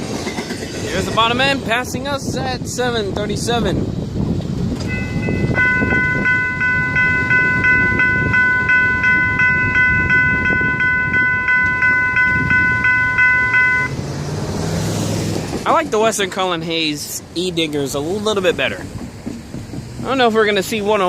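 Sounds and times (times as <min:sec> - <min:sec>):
freight train rumbling past: 0:00.0 - 0:21.0
electronic crossing bells ringing: 0:04.8 - 0:14.0.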